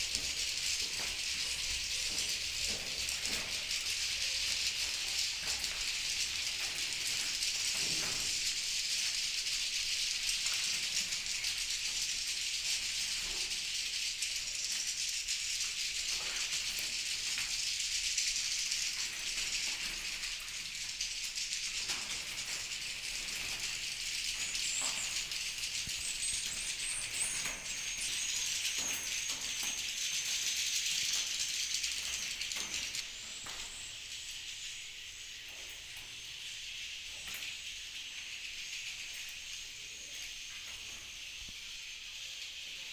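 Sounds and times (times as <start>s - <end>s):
swiftlets twittering: 22.6s - 35.4s.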